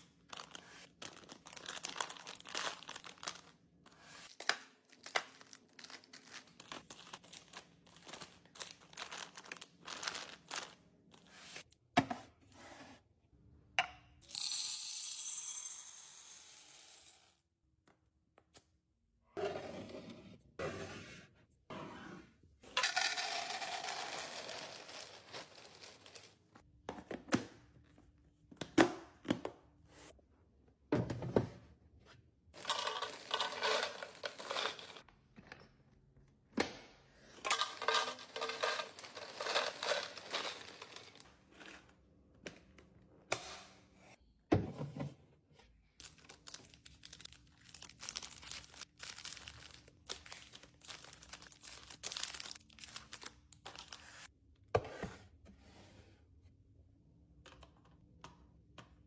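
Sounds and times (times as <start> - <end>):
plastic packaging crinkling and tearing: 0.2 - 3.5, 46.0 - 54.0
items knocking and clicking: 32.6 - 35.8, 37.5 - 41.2.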